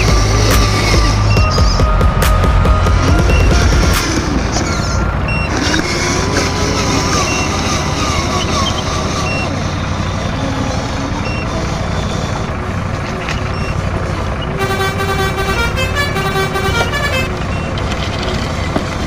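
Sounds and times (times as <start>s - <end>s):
truck engine running: 0.0s - 19.0s
horn playing stepped notes: 14.5s - 17.4s.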